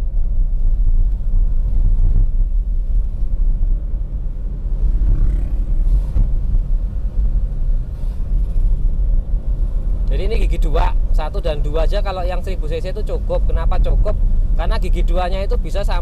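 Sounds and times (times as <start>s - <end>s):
car engine rumbling uphill: 0.0s - 16.0s
road noise: 0.0s - 16.0s.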